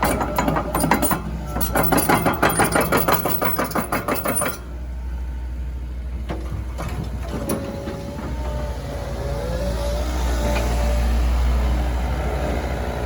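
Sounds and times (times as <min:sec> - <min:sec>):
fast even clatter of knocks: 0:00.0 - 0:04.6
excavator diesel engine running: 0:00.0 - 0:13.0.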